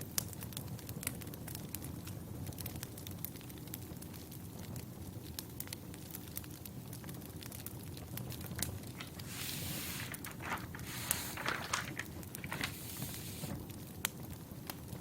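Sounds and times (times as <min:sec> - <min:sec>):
sharp pops of burning logs: 0:00.0 - 0:09.3, 0:11.9 - 0:12.5
wood fire crackling: 0:00.0 - 0:15.0
low hiss: 0:08.7 - 0:15.0
rustling noise: 0:08.8 - 0:13.7.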